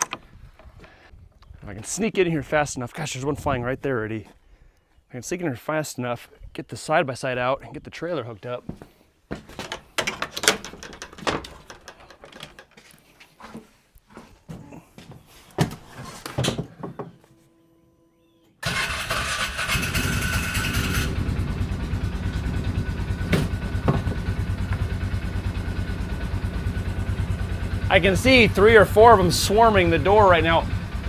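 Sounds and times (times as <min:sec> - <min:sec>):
knocks and clatter: 0:09.4 - 0:12.8, 0:23.0 - 0:25.8
utility vehicle engine running: 0:18.6 - 0:31.0.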